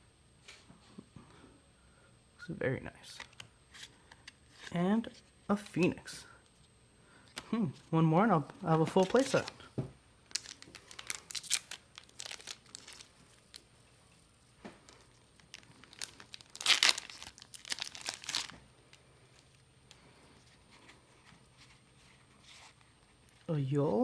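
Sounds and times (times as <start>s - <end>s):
foil wrapper crinkling and tearing: 8.8s - 9.6s, 10.2s - 13.7s, 14.9s - 18.7s.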